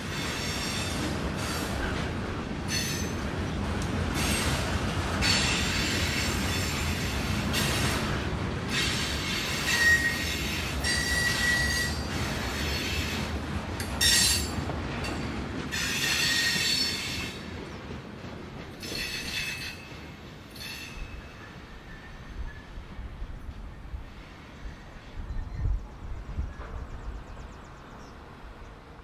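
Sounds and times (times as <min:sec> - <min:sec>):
freight cars rumbling on rails: 0:00.0 - 0:29.0
wheels squealing: 0:08.7 - 0:13.2.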